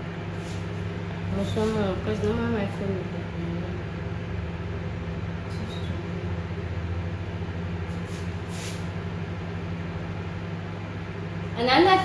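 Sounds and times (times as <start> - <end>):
microwave oven humming: 0.0 - 12.0
faint brief hissing: 7.9 - 8.9.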